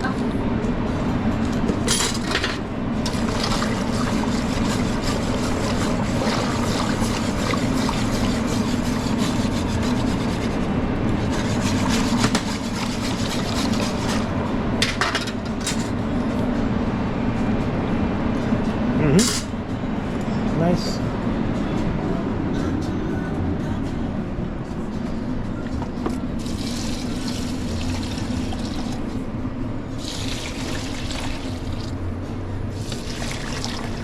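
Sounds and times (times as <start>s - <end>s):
low kitchen hum: 0.0s - 34.0s
rubbing and scraping from cooking: 3.1s - 14.3s.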